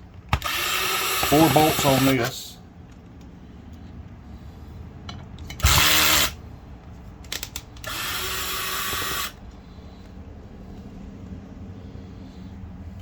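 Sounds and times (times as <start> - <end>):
cordless drill driver whirring: 0.3 - 2.1, 5.6 - 6.4, 7.3 - 9.4.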